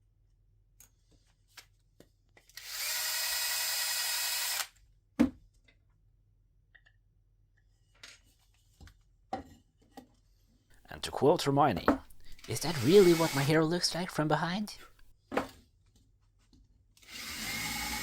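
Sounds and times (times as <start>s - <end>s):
drill cutting into wood: 2.6s - 4.8s, 12.2s - 13.5s, 17.0s - 18.0s.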